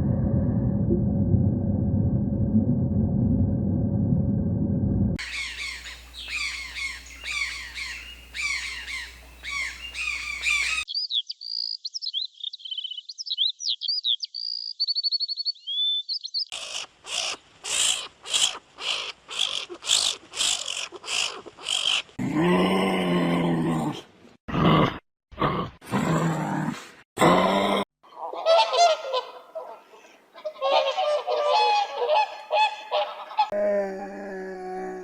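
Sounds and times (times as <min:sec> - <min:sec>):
sharp animal calls: 0:05.2 - 0:10.9, 0:16.5 - 0:22.2
falling bird calls: 0:05.2 - 0:11.8
high bird song with trills: 0:05.2 - 0:16.5.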